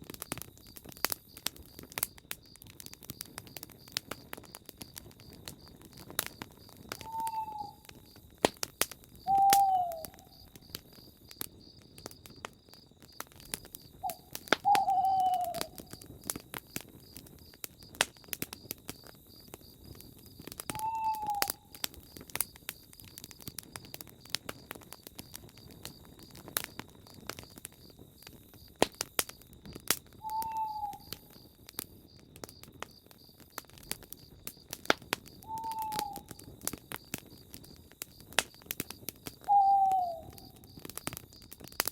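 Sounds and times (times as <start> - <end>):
campfire crackling and popping: 0.0 - 41.9
owl-like bird hooting: 7.0 - 7.9, 9.3 - 10.4, 14.0 - 15.9, 20.7 - 21.6, 30.2 - 31.2, 35.4 - 36.3, 39.4 - 40.6.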